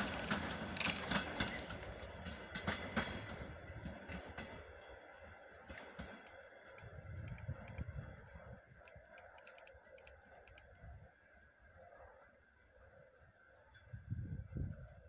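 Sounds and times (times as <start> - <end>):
train low rumble: 0.0 - 15.0
light clicks: 4.1 - 10.8.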